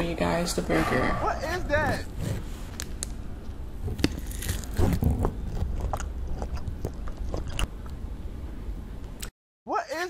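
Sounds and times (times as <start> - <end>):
biting and chewing food: 3.8 - 8.0.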